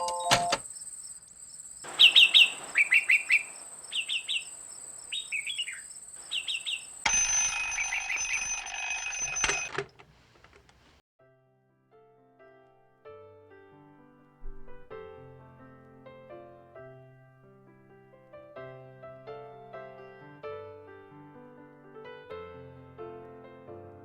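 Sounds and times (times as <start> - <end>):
steady high tone: 0.0 - 0.6
small birds chirping: 0.0 - 9.4.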